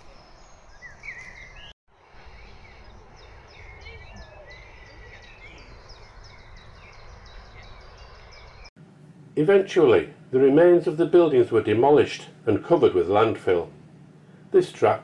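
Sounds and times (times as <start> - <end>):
small birds chirping: 0.0 - 8.7.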